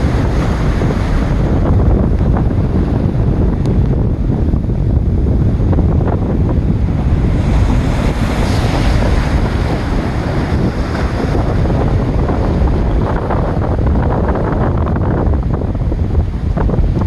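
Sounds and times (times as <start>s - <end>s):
surf breaking against rocks: 0.0s - 3.1s, 5.6s - 15.3s
wind buffeting microphone: 0.0s - 17.0s.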